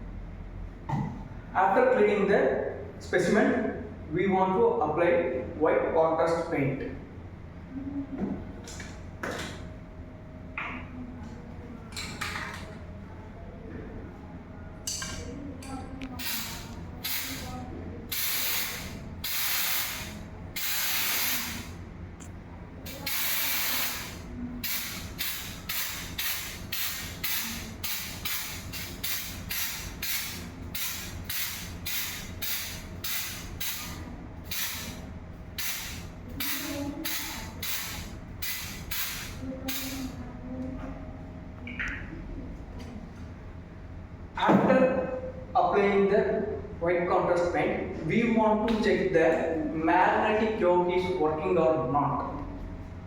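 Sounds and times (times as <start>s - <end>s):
aerosol can spraying: 16.2s - 17.5s, 18.1s - 21.8s, 22.9s - 35.0s, 35.6s - 40.2s.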